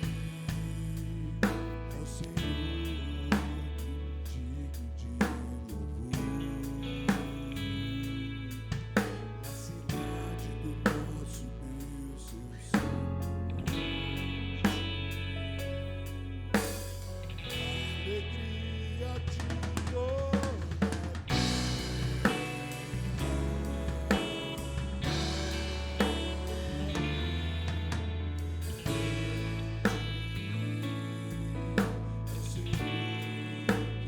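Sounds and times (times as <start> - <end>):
slow instrumental band music: 0.0 - 34.0
drum kit accents: 19.2 - 31.0.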